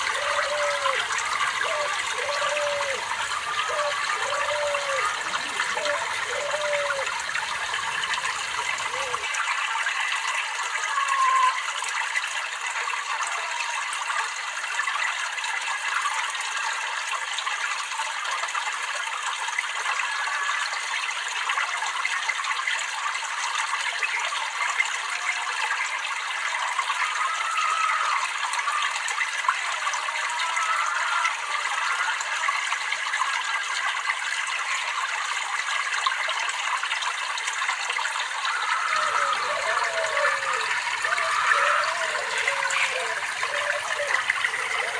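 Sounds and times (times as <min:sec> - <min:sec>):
deeper water rush: 0:00.0 - 0:09.3, 0:38.9 - 0:44.9
water trickling and babbling: 0:00.0 - 0:09.4, 0:38.4 - 0:44.9.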